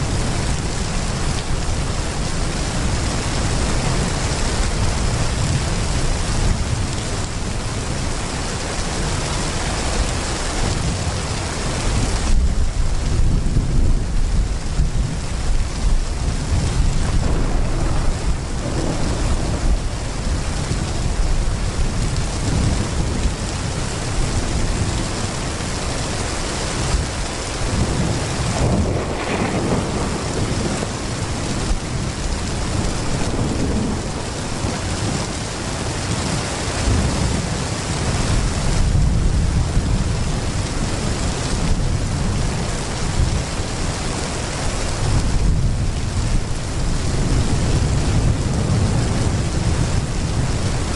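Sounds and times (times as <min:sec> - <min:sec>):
heavy rain pouring: 0:00.0 - 0:50.9
thunder rumbling: 0:00.0 - 0:50.9.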